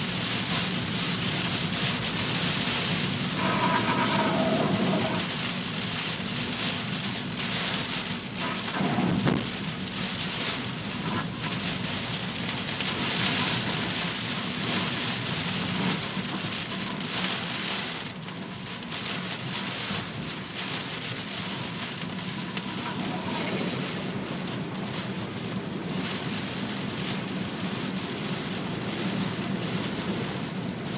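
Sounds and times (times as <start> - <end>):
heavy rain hitting a surface: 0.0 - 30.9.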